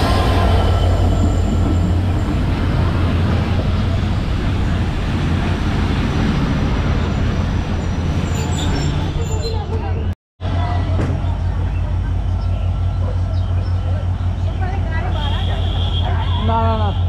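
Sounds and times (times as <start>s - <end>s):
train wheels on rails: 0.0s - 16.2s
diesel locomotive engine drone: 0.0s - 17.0s.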